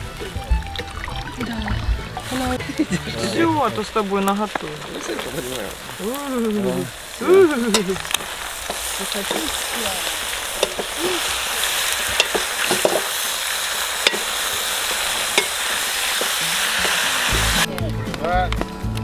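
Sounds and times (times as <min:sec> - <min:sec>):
meat and vegetables sizzling: 0:00.0 - 0:19.0
metal clinks of utensils on pot: 0:12.1 - 0:13.0.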